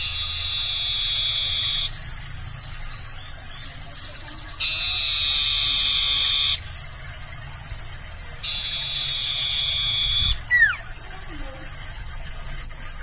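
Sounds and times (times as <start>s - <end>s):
barn owl screeching: 0.0s - 2.0s, 4.6s - 6.6s, 8.4s - 10.9s.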